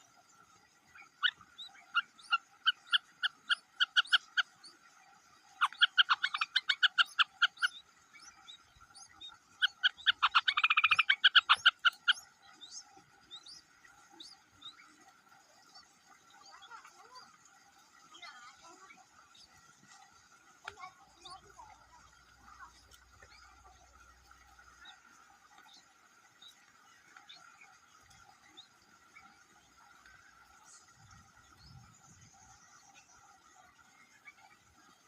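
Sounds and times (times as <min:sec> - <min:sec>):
background animal chorus: 0:00.0 - 0:35.0
repeated animal calls: 0:00.9 - 0:04.6, 0:05.5 - 0:07.9, 0:09.0 - 0:12.4.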